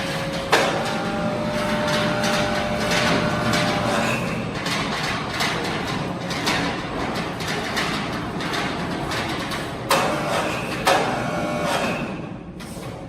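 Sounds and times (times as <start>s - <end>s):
machinery whine: 0.0s - 4.6s
machinery clatter: 0.0s - 13.0s.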